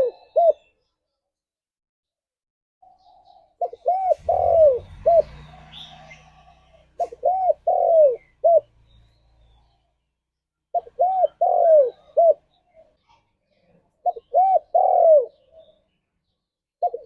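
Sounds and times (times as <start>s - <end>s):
dove cooing: 0.0s - 0.7s, 2.8s - 9.8s, 10.7s - 12.9s, 14.0s - 15.9s, 16.8s - 17.0s.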